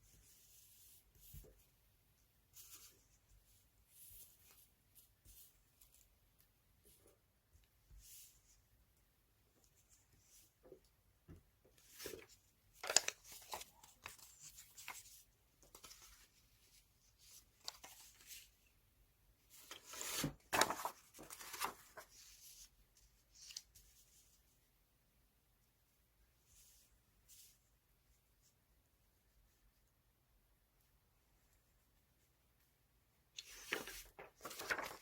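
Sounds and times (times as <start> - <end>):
magazine paper rustling: 11.8 - 16.4, 19.5 - 22.4, 33.4 - 35.0.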